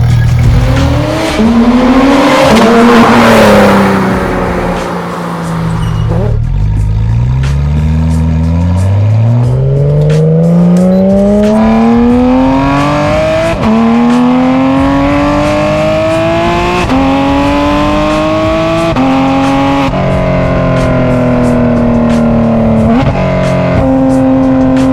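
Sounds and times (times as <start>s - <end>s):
sports car accelerating through gears: 0.3s - 24.9s.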